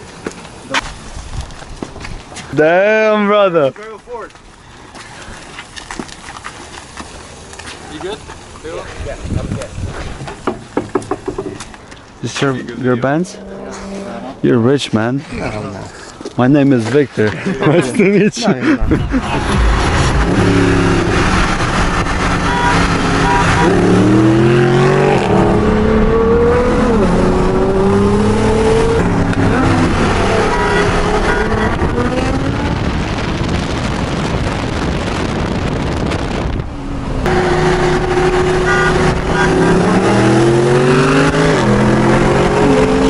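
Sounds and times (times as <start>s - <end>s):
car engine accelerating: 18.8s - 33.2s, 37.0s - 43.0s.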